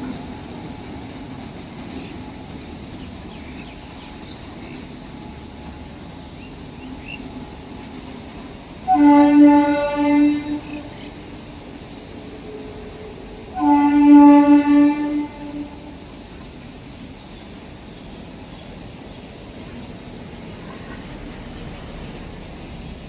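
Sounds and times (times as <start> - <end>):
train rumbling: 0.0 - 23.0
train horn blasts: 8.7 - 11.3, 13.2 - 16.2.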